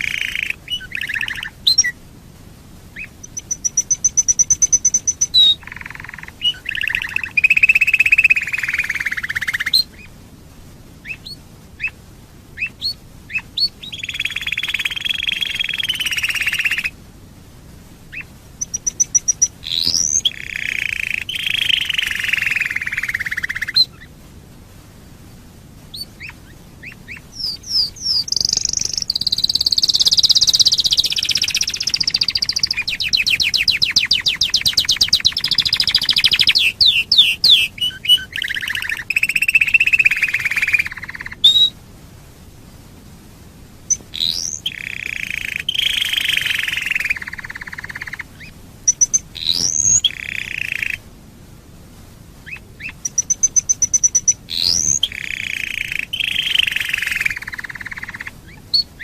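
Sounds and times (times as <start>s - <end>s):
canary rolling trills: 0.0s - 1.9s, 2.9s - 10.1s
sharp bird chirps: 0.0s - 2.0s, 3.0s - 10.1s, 12.6s - 16.9s, 18.1s - 24.1s, 25.9s - 41.7s, 43.9s - 51.0s, 52.5s - 59.0s.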